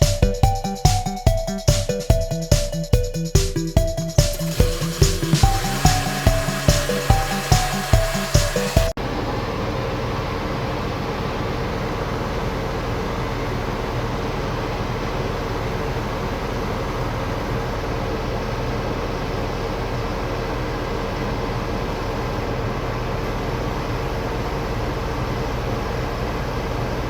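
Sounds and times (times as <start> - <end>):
tractor diesel engine humming: 0.0 - 9.2.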